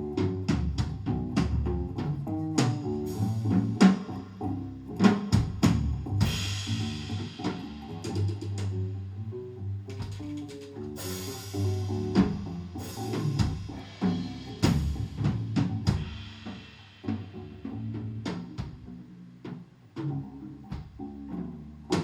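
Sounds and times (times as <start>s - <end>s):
drum kit: 0.0s - 22.0s
sustained bass and guitar: 0.0s - 22.0s.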